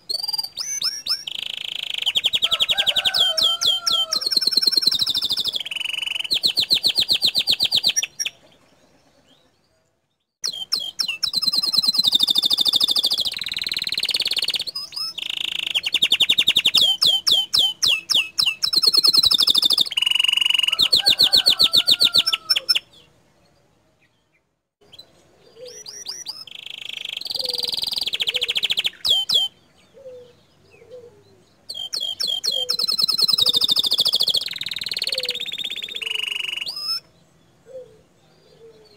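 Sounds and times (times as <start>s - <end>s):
canary singing trills: 0.0s - 9.8s, 10.4s - 38.9s.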